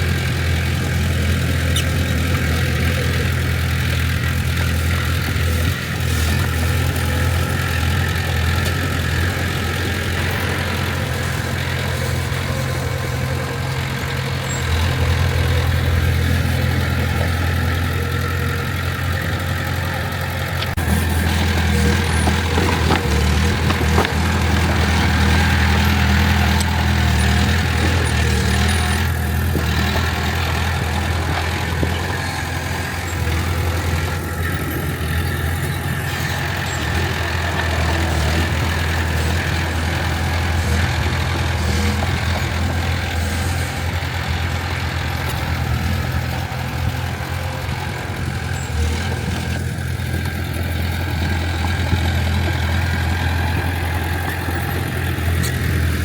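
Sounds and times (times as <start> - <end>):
diesel engine humming: 0.0 - 56.0.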